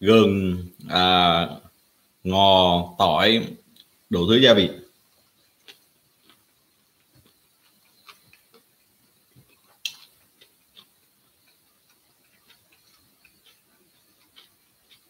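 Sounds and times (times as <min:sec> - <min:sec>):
person chewing: 0:05.5 - 0:15.0
small mouth clicks: 0:05.6 - 0:15.0.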